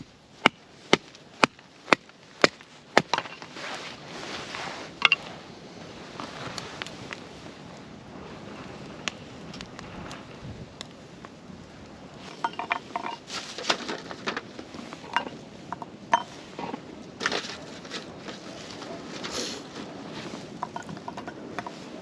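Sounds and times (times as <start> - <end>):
dishes and utensils clinking: 12.3 - 14.4, 15.1 - 16.4, 20.6 - 21.8.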